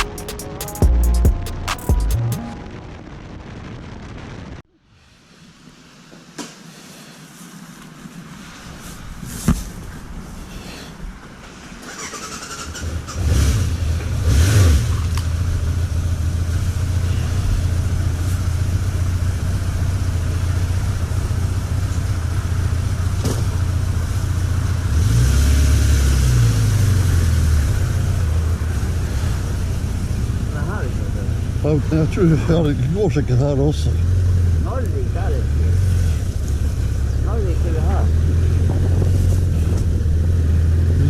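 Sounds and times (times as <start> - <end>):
motorcycle engine revving: 11.8 - 32.7, 33.4 - 41.0.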